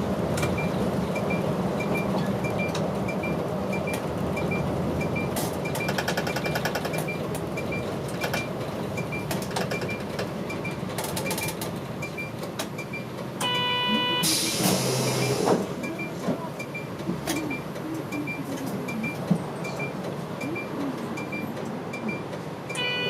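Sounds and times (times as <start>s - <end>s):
bus engine and road noise: 0.0s - 23.0s
short electronic beep: 13.4s - 15.4s, 22.0s - 23.0s.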